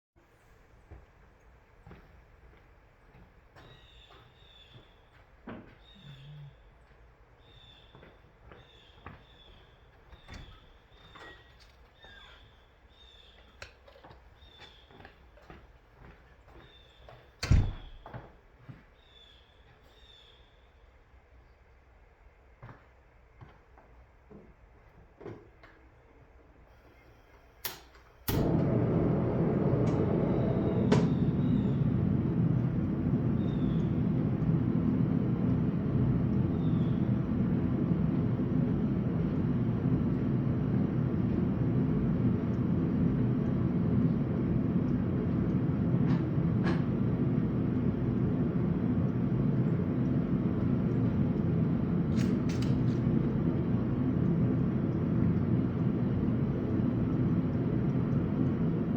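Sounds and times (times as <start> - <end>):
forge rushing noise: 28.3 - 58.9.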